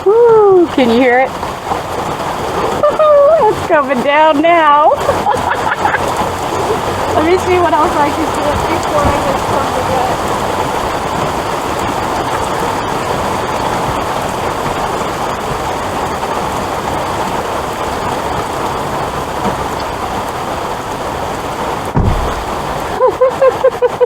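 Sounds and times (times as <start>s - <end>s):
heavy rain pouring: 0.0s - 24.0s
dull thump: 8.9s - 9.8s, 21.9s - 23.0s.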